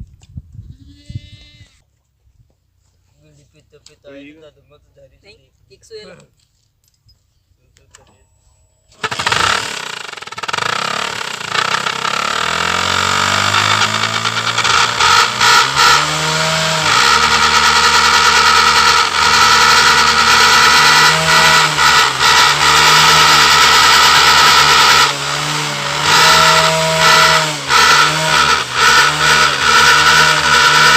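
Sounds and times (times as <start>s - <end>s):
steady high exhaust tone: 8.2s - 30.9s
motorcycle engine running: 8.9s - 30.9s.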